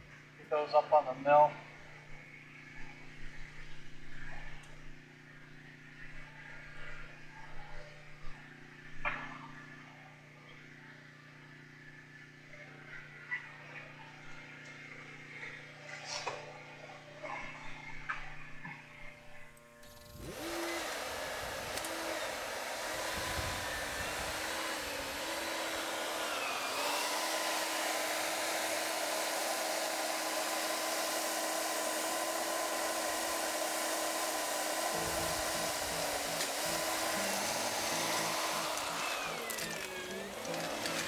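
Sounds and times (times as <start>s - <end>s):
skid steer engine running: 19.8s - 41.0s.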